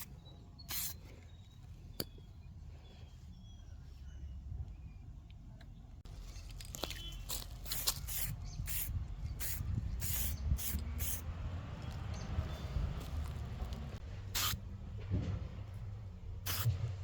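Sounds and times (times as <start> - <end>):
spray paint can bursts: 0.7 - 1.0, 7.3 - 11.2, 14.3 - 14.6, 16.5 - 16.7.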